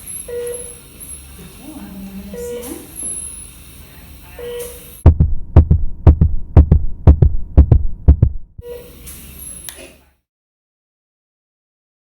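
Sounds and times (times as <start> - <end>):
baby's heartbeat thuds: 5.0 - 8.6.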